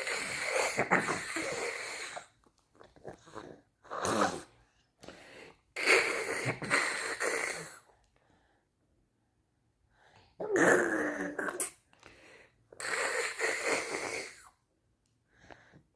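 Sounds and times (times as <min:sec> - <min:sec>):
baby making wheezy sounds: 0:00.0 - 0:02.3.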